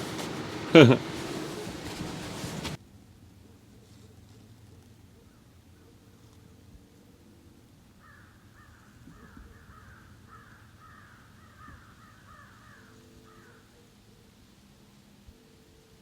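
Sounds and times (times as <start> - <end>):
crow cawing: 8.0 - 13.6.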